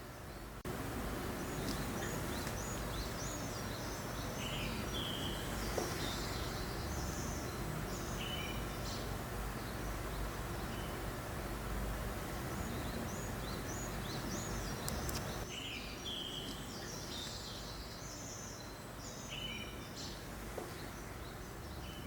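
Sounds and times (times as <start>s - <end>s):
breeze rushing: 0.0s - 15.5s
songbirds chirping: 0.0s - 22.0s.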